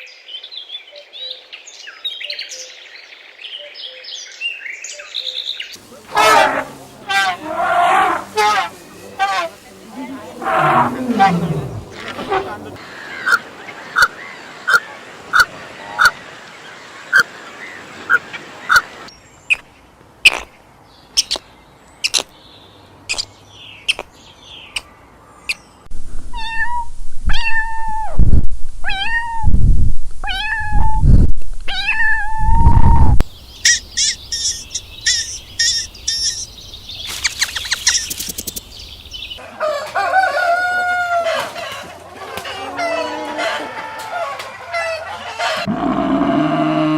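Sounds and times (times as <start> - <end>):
drawn-out pitched animal calls: 5.8 - 13.4.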